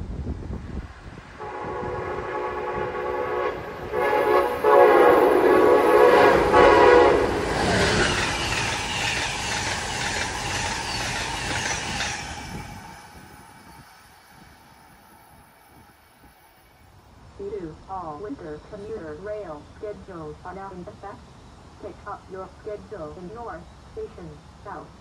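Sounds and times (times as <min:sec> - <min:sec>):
train horn blasts: 0:01.4 - 0:07.5
train coaches rushing past: 0:01.4 - 0:17.0.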